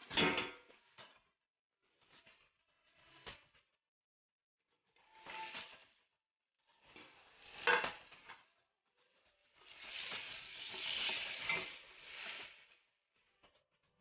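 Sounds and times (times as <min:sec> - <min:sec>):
food sizzling in oil: 0:06.9 - 0:08.3, 0:09.6 - 0:12.8
pot clatter: 0:07.5 - 0:08.4, 0:09.8 - 0:12.6.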